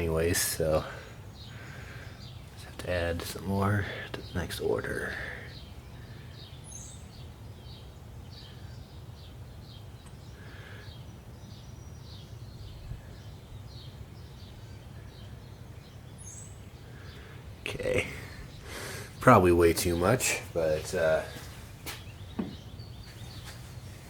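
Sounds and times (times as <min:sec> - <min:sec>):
bird chirping: 0:00.0 - 0:24.0
steady low hum: 0:00.0 - 0:24.0.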